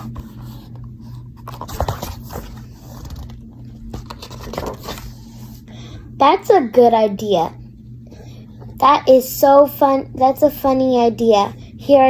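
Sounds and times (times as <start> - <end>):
paper pages rustling: 0.0 - 5.6
low hum: 0.0 - 12.0.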